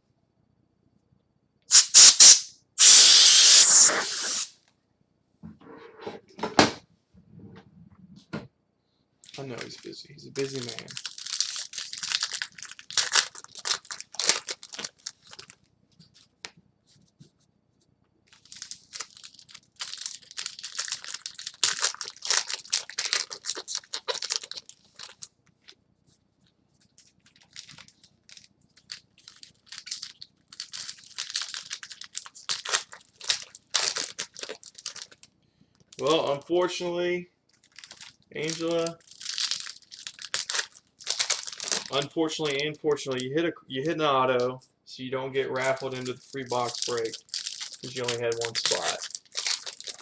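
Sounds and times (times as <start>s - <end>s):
wrappers tearing and crinkling: 1.7s - 4.5s, 10.4s - 15.6s, 18.3s - 25.3s, 26.9s - 36.2s, 37.5s - 43.2s, 45.6s - 50.0s.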